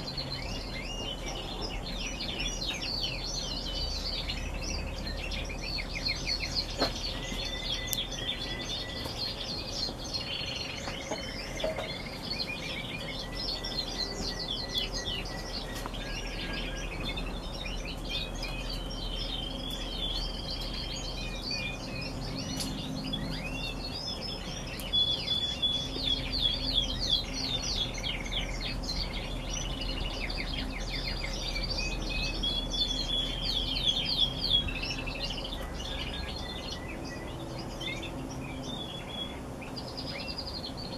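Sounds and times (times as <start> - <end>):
canaries singing: 0.0 - 40.9.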